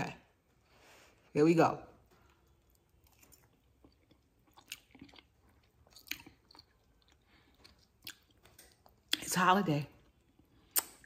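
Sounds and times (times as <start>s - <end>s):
person chewing food: 2.3s - 9.3s, 10.0s - 11.0s
mouth clicks and smacks: 10.6s - 11.0s.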